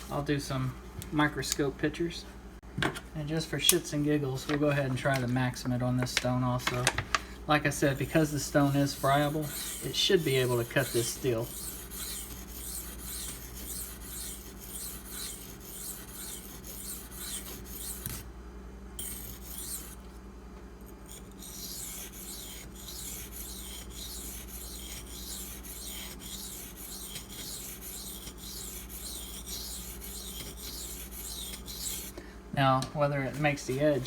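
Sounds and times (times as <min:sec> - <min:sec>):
steady low hum: 0:00.0 - 0:34.0
knife scraping on whetstone: 0:07.8 - 0:18.2, 0:19.0 - 0:20.0, 0:21.0 - 0:32.2.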